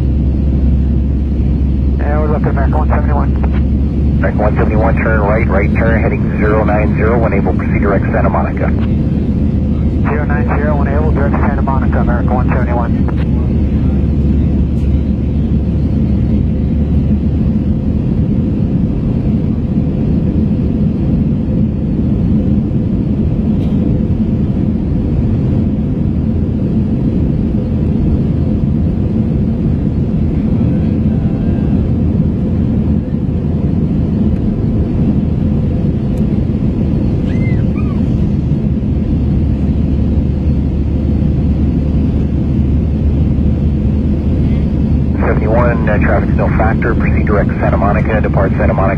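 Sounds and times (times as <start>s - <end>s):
airplane cabin engine drone: 0.0s - 48.9s.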